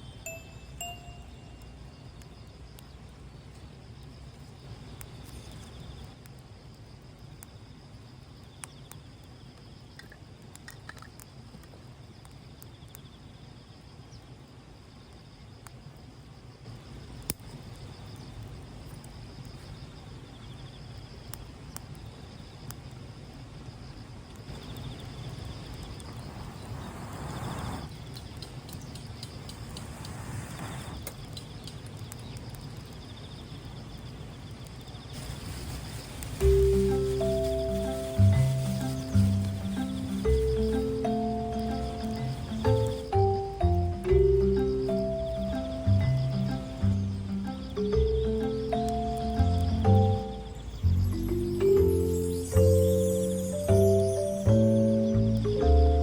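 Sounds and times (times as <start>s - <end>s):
crickets chirping: 0.0s - 56.0s
rushing noise: 25.8s - 27.9s, 29.5s - 31.1s.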